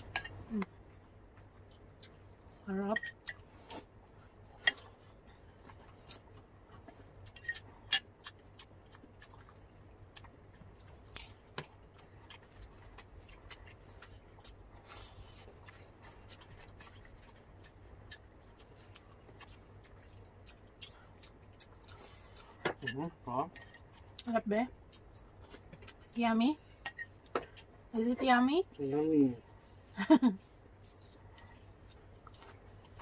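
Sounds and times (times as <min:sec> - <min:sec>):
chewing and mouth clicks: 0:04.6 - 0:22.6, 0:23.5 - 0:26.2, 0:30.5 - 0:33.0.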